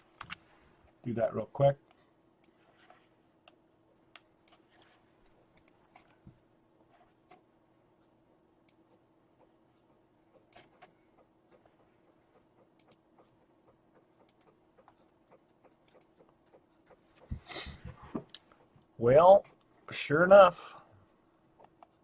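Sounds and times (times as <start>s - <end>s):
faint steady hum: 0.0s - 22.0s
computer mouse clicking: 3.4s - 4.8s, 5.5s - 6.2s, 8.0s - 17.4s, 21.6s - 22.0s.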